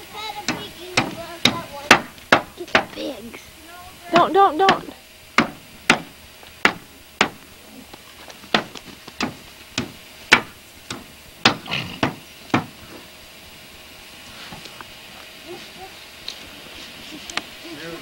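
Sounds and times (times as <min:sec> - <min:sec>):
sharp knocks: 0:00.5 - 0:03.0, 0:04.2 - 0:07.4, 0:08.5 - 0:12.8.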